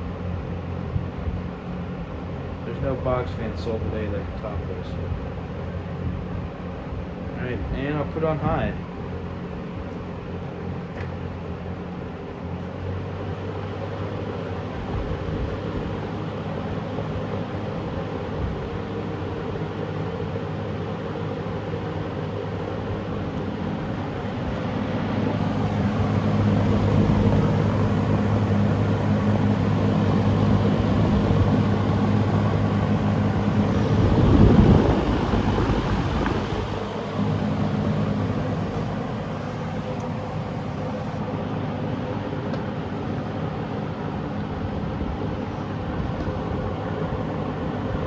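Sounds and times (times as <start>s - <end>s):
box fan motor hum: 0.0s - 48.0s
rush of moving air: 23.8s - 40.7s.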